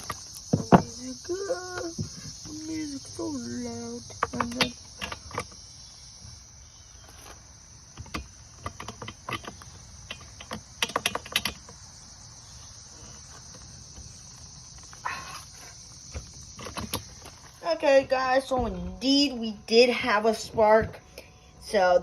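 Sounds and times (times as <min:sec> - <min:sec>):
insect chorus: 0:00.0 - 0:22.0.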